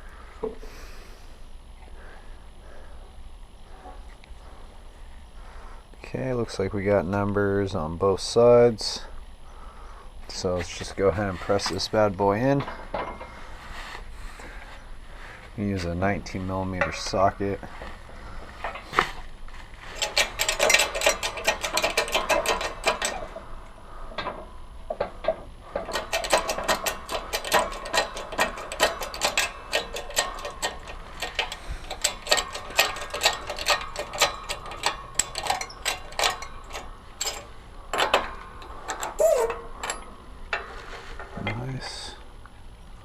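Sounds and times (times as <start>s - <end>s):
rapid metallic clicking: 19.8s - 42.1s.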